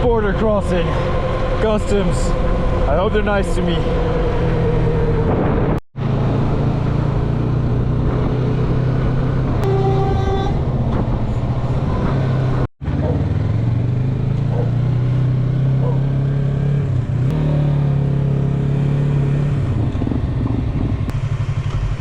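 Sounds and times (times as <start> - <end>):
wind rushing: 0.7 - 9.6
horn: 9.6 - 10.7
motorcycle engine running: 12.2 - 22.0.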